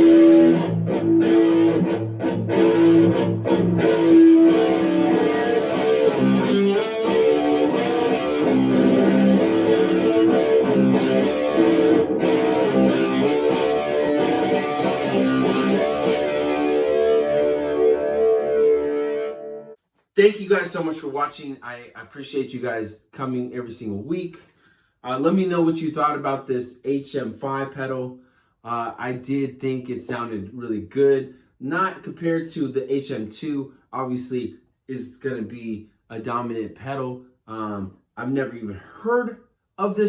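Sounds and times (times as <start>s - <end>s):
distorted electric guitar chords: 0.0s - 19.8s.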